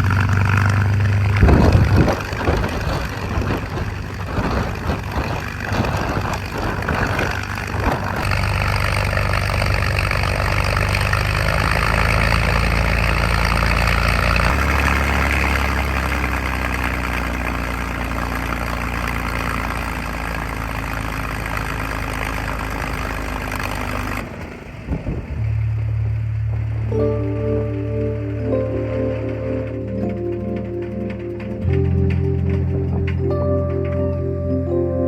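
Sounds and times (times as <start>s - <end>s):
aircraft engine running: 0.0s - 35.0s
music: 25.9s - 35.0s.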